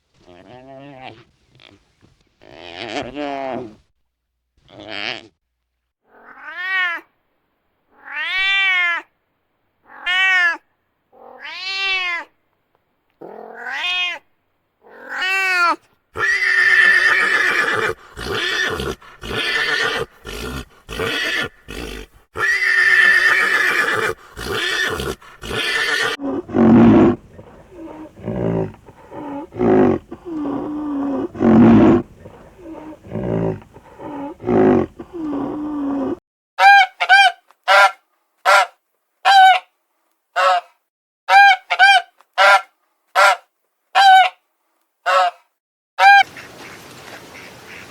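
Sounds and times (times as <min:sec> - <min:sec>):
farm animal calls: 0:15.0 - 0:38.7, 0:41.3 - 0:43.4, 0:44.0 - 0:44.3, 0:45.1 - 0:45.4.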